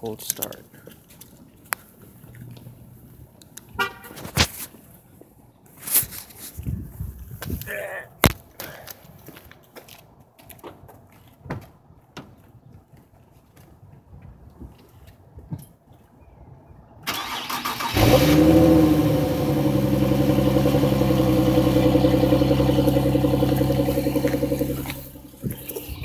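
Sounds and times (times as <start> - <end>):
car engine revving and idling: 17.8 - 26.0
starter motor cranking: 22.8 - 26.0.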